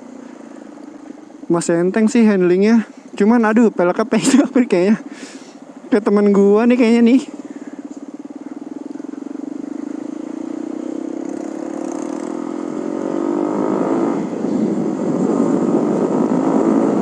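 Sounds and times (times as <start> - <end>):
motorcycle engine accelerating: 0.0 - 17.0
wind rushing noise: 13.0 - 17.0.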